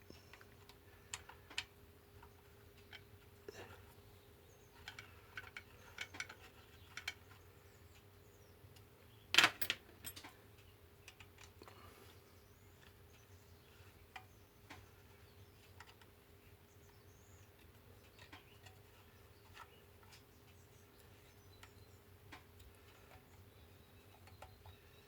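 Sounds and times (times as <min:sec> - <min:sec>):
clicks and taps of hand tools: 0:21.6 - 0:23.4.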